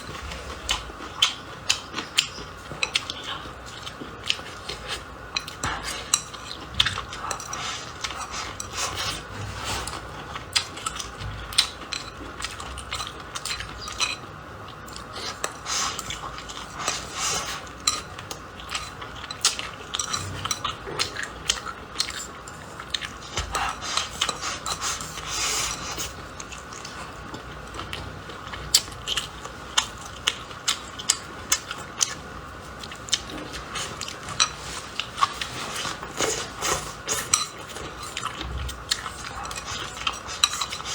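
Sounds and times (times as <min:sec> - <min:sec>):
crunchy chewing: 0:00.0 - 0:40.9
utensils clicking against a bowl: 0:00.7 - 0:09.3, 0:33.1 - 0:40.9.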